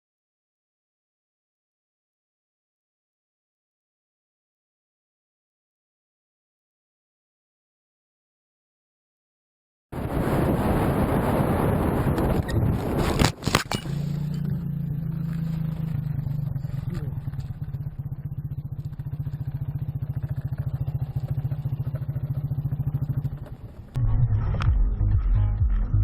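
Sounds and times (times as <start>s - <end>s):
vehicle engine humming: 10.0s - 26.0s.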